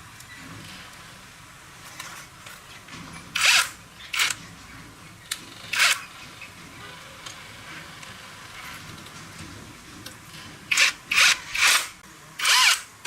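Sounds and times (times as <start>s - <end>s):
handheld power tool running: 3.4s - 4.4s, 10.7s - 12.9s.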